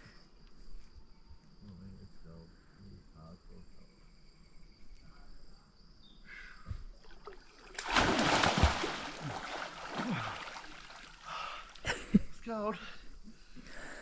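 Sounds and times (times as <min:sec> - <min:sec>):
big splash into water: 0:07.1 - 0:11.3
water washing: 0:07.2 - 0:11.4.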